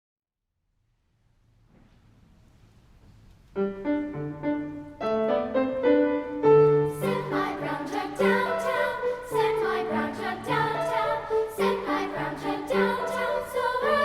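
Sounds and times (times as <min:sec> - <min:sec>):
faint room noise: 0:00.4 - 0:08.4
piano playing: 0:03.5 - 0:14.0.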